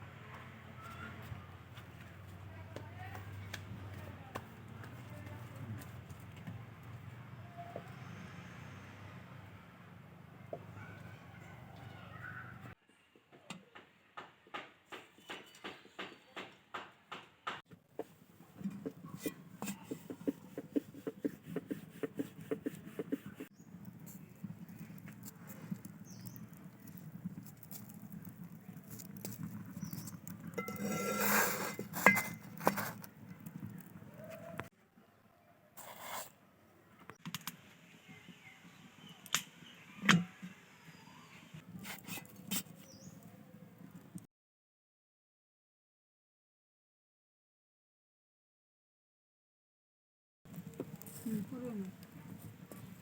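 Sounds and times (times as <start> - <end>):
kitchen scrape: 18.0 - 23.5, 29.0 - 34.6, 35.8 - 36.4, 41.8 - 43.2
utensils and dishes clinking: 30.5 - 33.0.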